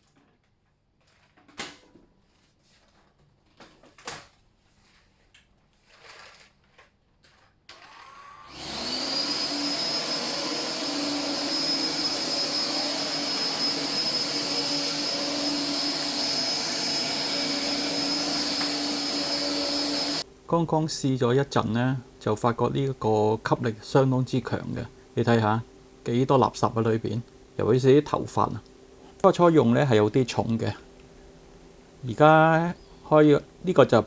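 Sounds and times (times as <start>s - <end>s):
stick vacuum whining: 7.7s - 20.2s.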